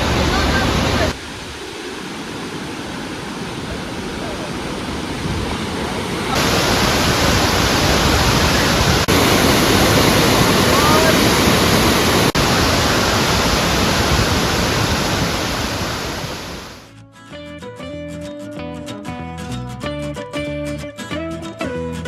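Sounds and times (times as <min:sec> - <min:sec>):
waterfall rushing: 0:00.0 - 0:16.8
guitar music: 0:16.9 - 0:22.0.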